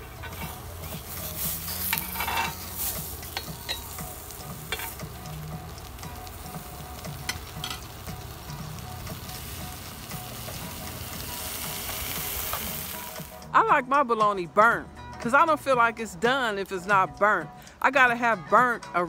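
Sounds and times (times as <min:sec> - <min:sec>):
metal tongs scraping: 0:00.0 - 0:05.4
meat sizzling in a skillet: 0:00.0 - 0:13.5.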